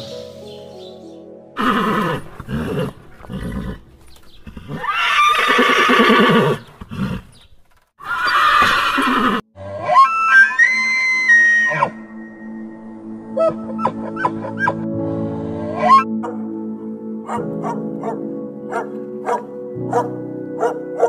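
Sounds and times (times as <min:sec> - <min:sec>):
background music: 0:00.0 - 0:06.2, 0:09.9 - 0:21.0
horses neighing: 0:01.6 - 0:07.4, 0:08.0 - 0:10.7.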